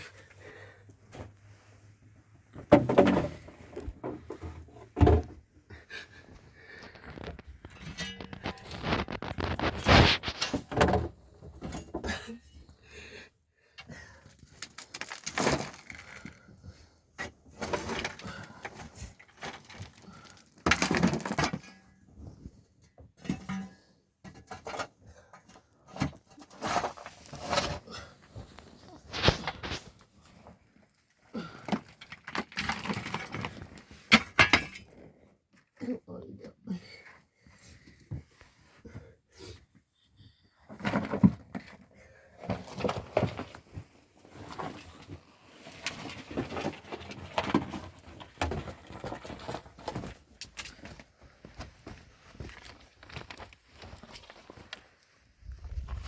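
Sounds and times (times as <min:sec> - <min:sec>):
stones knocking and scraping: 0:06.9 - 0:12.1, 0:14.3 - 0:16.4, 0:17.2 - 0:21.7, 0:42.4 - 0:54.6, 0:55.5 - 0:56.0.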